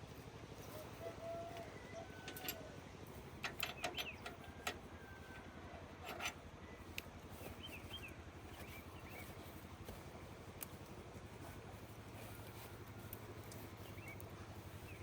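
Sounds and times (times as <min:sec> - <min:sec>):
low mechanical drone: 0:00.0 - 0:15.0
metallic clinks of hand tools: 0:02.3 - 0:02.7
bird chirps: 0:06.7 - 0:09.4, 0:13.8 - 0:15.0.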